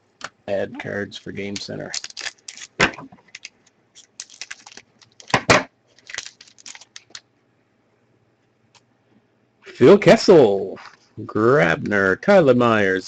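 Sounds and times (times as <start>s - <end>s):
foil wrappers crinkling: 1.4s - 7.2s
trading cards clicking and flicking: 1.4s - 7.2s.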